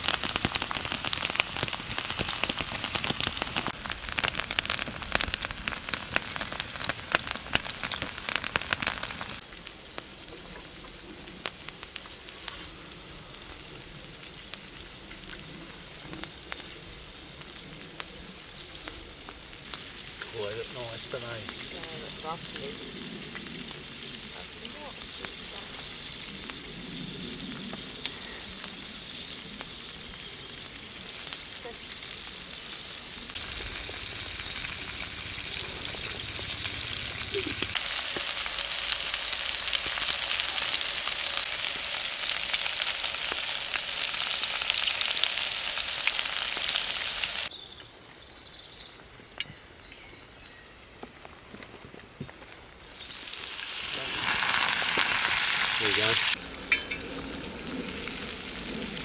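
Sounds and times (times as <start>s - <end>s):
food sizzling in a frying pan: 0.0s - 10.6s, 18.4s - 47.5s, 52.9s - 59.0s.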